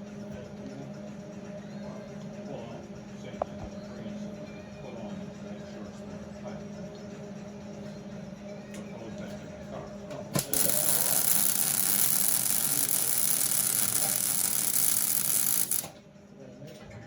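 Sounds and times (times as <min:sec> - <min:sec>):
welding arc crackling hiss: 0:10.4 - 0:15.9.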